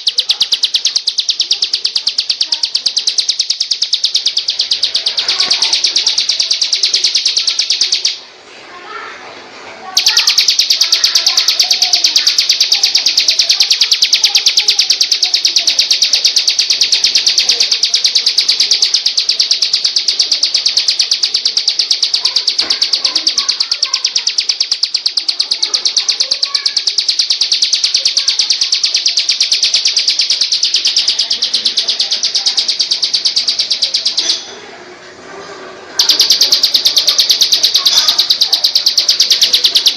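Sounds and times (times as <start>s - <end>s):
faint lower bird chirps: 0.0s - 8.2s, 10.0s - 34.5s, 36.0s - 39.9s
songbird high-pitched trill: 0.0s - 8.2s, 10.0s - 34.5s, 36.0s - 39.9s.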